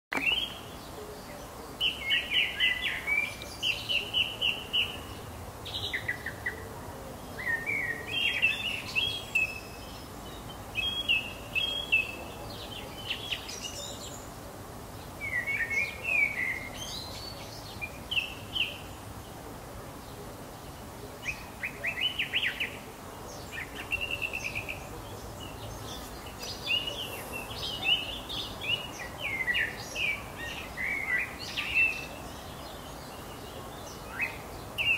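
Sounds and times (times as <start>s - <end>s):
faint hiss: 0.2s - 34.9s.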